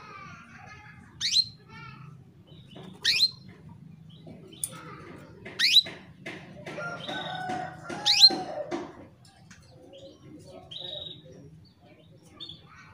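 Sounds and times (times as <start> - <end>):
soft bird twittering: 1.2 - 1.6, 2.4 - 4.8, 5.6 - 6.0
canary rising chirps: 1.2 - 1.7, 2.6 - 3.5.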